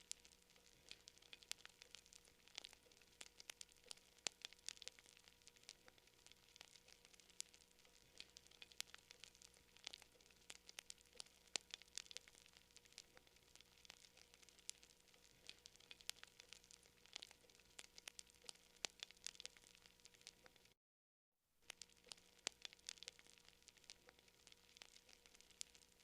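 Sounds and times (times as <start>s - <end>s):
faint hiss: 0.0s - 20.8s
wood fire crackling: 0.0s - 20.8s, 21.6s - 26.0s.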